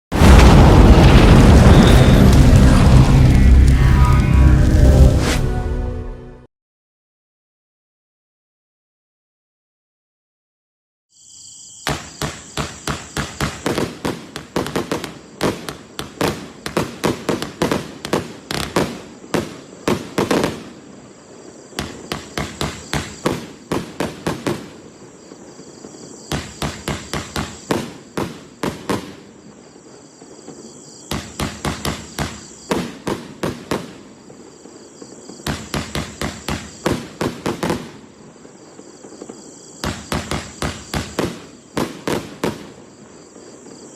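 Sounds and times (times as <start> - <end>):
firecrackers banging: 0.1 - 5.4.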